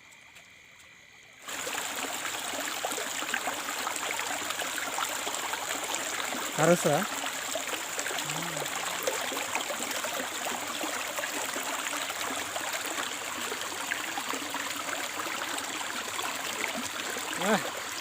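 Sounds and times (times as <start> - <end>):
flowing water rushing: 1.4 - 18.0.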